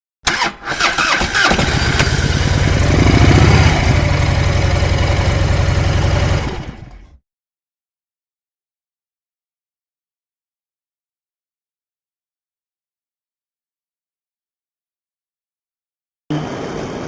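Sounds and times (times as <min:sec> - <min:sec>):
motorcycle starter cranking: 0:00.2 - 0:04.4
motorcycle engine running: 0:00.7 - 0:07.1.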